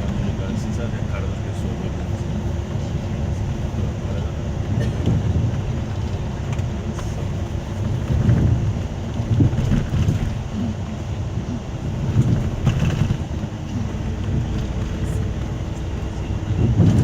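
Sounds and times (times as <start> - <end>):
diesel engine rumble: 0.0 - 17.0
road noise: 0.0 - 17.0.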